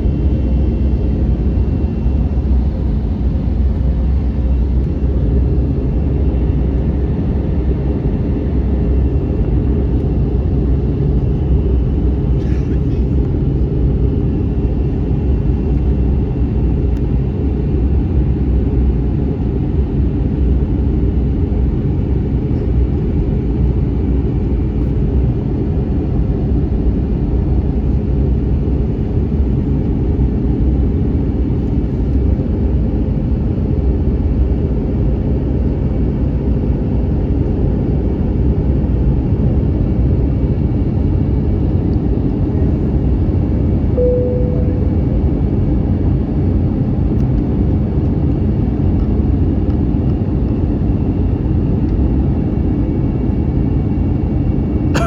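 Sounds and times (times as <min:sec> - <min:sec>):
airplane cabin rumble: 0:00.0 - 0:55.0
faint steady hum: 0:41.5 - 0:47.4.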